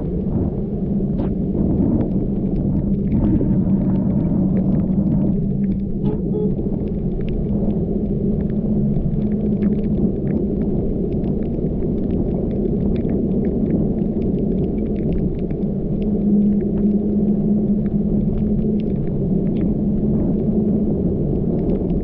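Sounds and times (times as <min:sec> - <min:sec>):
car engine and tyres on wet road: 0:00.1 - 0:09.2
raindrops ticking on car: 0:01.1 - 0:20.4.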